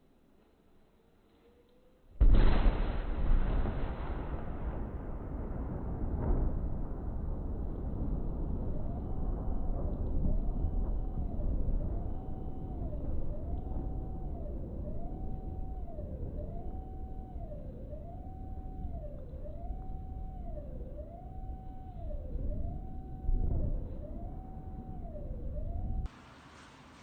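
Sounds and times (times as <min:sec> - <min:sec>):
emergency siren wailing: 0:07.8 - 0:26.2.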